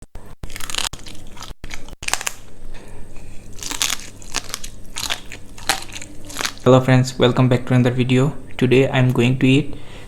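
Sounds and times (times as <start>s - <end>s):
crunchy chewing of food: 0.4s - 6.7s.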